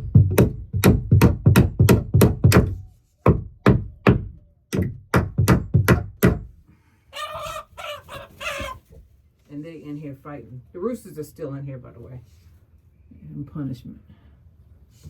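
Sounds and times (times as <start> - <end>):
hammer driving nail into wood: 0.1 - 6.5
chicken calling: 7.1 - 9.0.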